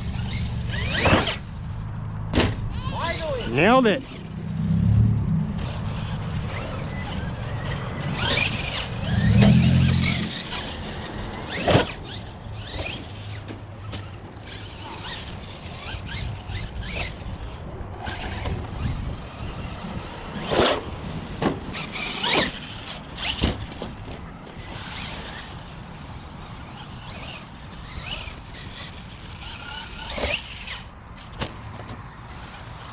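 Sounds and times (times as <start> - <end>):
toy trucks landing knocks: 21.4 - 25.8.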